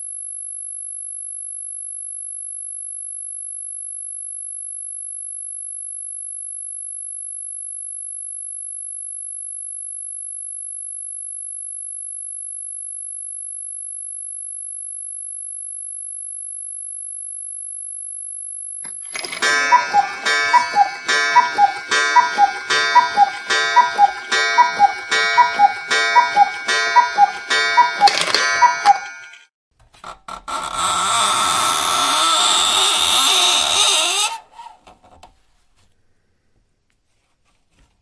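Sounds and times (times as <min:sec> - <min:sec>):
high-pitched sine tone: 0:00.0 - 0:29.5.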